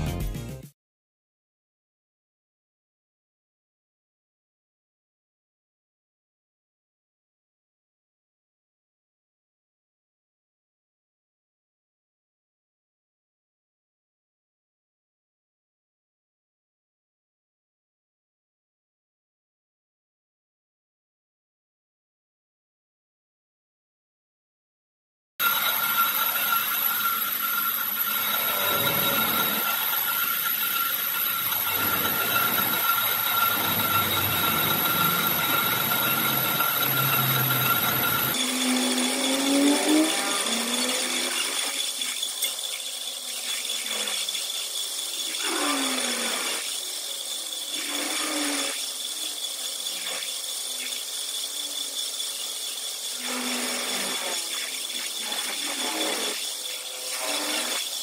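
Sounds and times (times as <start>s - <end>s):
power tool high whine: 25.4s - 58.0s.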